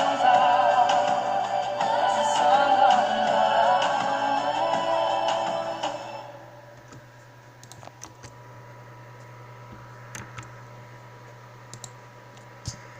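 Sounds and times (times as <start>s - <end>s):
music: 0.0s - 6.7s
steady low hum: 0.0s - 12.9s.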